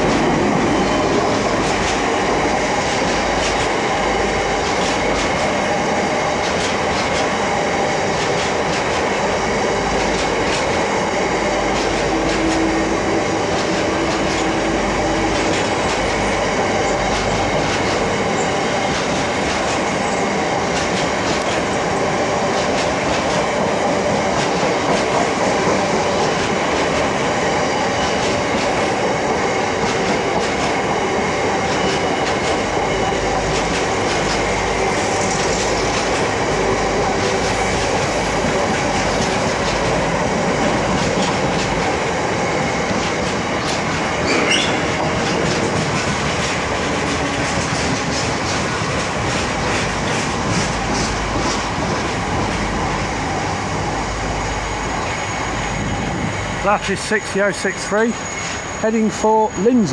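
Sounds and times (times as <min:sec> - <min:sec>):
wheels clickety-clack over joints: 0:00.0 - 0:05.6, 0:06.3 - 0:09.3, 0:09.9 - 0:10.9, 0:11.7 - 0:12.8, 0:15.3 - 0:16.2, 0:16.8 - 0:31.0, 0:31.6 - 0:34.6, 0:37.2 - 0:52.9
wheels rumbling on rail: 0:00.0 - 0:59.9
short high squeal: 0:44.2 - 0:44.8.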